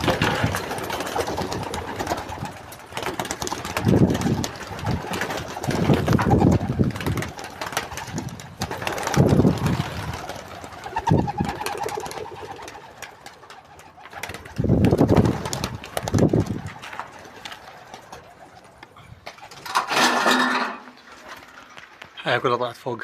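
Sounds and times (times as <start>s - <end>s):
pigeons cooing: 0.0s - 19.9s.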